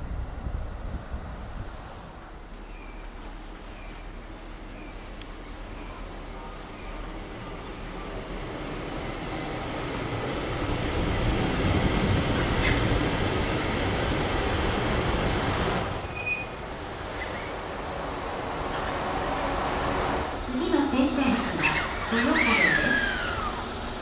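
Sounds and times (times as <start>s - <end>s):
electric train running on track: 0.1s - 24.0s
high wheel squeaks: 12.4s - 13.0s, 16.0s - 19.1s.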